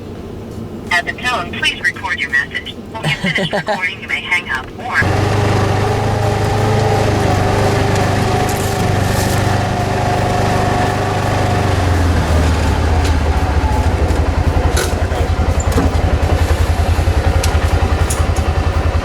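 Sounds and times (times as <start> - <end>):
vehicle engine running: 4.2 - 19.0.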